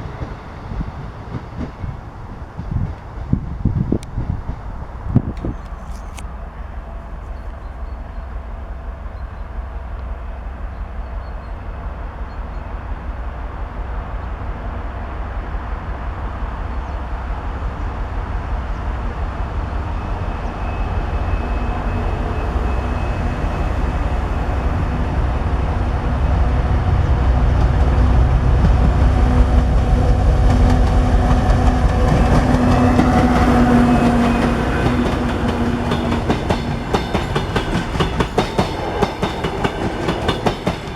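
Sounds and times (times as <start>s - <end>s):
diesel train running past: 0.0s - 40.9s
wheels clicking over rail joints: 32.0s - 40.9s.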